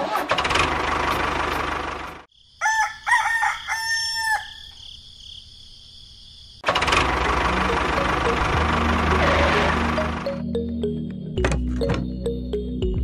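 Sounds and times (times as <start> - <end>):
rooster crowing: 2.6 - 4.8.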